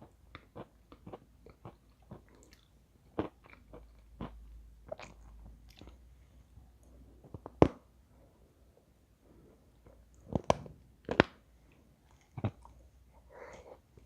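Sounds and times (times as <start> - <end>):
quiet chewing: 0.3 - 6.0, 11.6 - 14.0.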